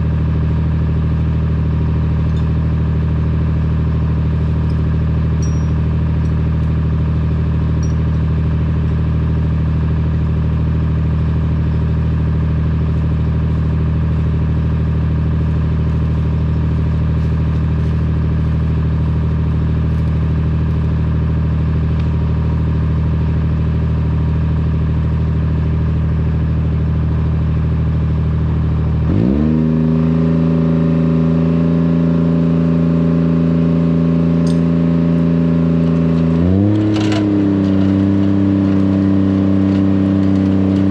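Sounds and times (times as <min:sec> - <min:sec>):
vehicle engine revving: 0:08.5 - 0:22.7, 0:28.4 - 0:40.9.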